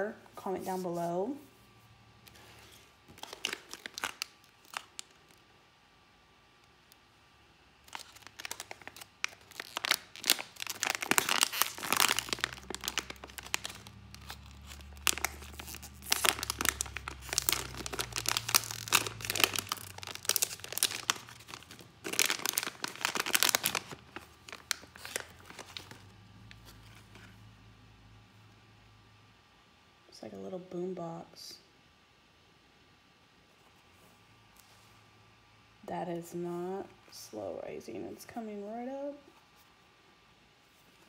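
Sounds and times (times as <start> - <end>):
plastic packaging crackling: 2.3 - 5.5, 7.8 - 27.4.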